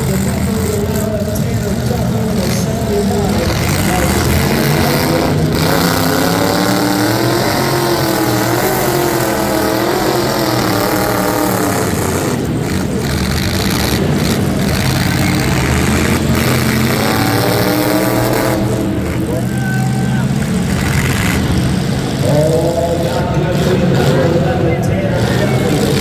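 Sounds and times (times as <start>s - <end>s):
race truck engines: 0.0s - 26.0s.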